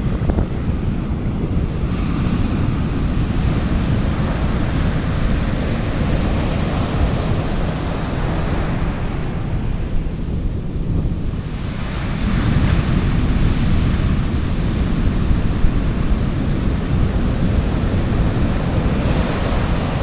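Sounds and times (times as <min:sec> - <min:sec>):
sea waves washing up a beach: 0:00.0 - 0:20.0
wind rumble on microphone: 0:00.0 - 0:20.0.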